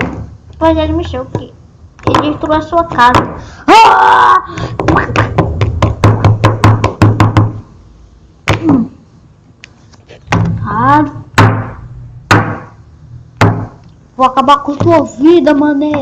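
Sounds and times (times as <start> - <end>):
sharp knocks: 0.0 - 0.4, 1.0 - 3.5, 4.6 - 7.7, 10.3 - 10.7, 11.3 - 12.8, 13.4 - 13.8.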